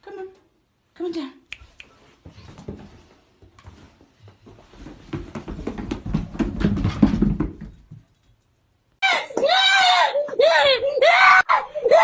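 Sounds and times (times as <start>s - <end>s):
dog paws thudding on stairs: 2.2s - 8.4s.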